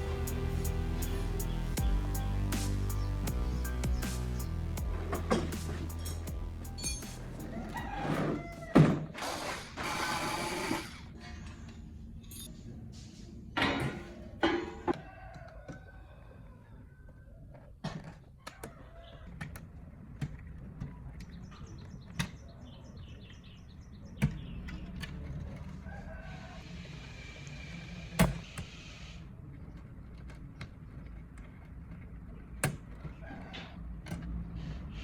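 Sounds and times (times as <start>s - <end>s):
hand tools and metal parts clicking: 5.1s - 7.8s.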